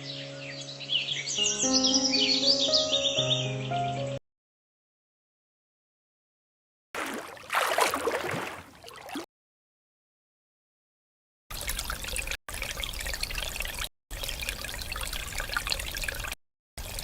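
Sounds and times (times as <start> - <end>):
water splashing and trickling: 7.0 - 9.3, 11.5 - 17.0.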